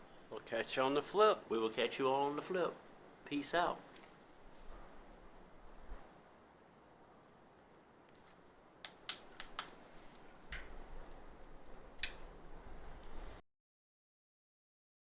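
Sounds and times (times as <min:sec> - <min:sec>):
sharp clicks: 0:08.8 - 0:09.8, 0:10.5 - 0:12.3.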